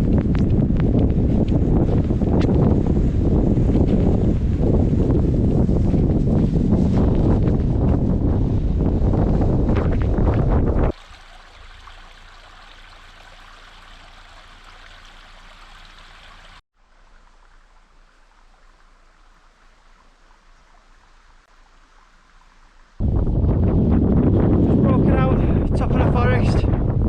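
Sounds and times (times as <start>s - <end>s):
wind buffeting microphone: 0.0s - 11.0s, 23.0s - 27.0s
small stream rushing: 10.9s - 23.0s.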